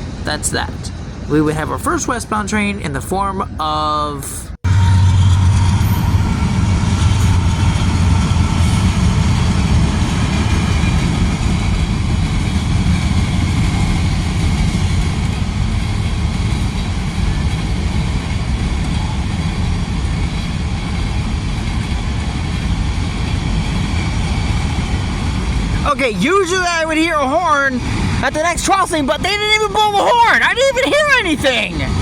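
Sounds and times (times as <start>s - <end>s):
freight train rumbling past: 0.0s - 32.0s.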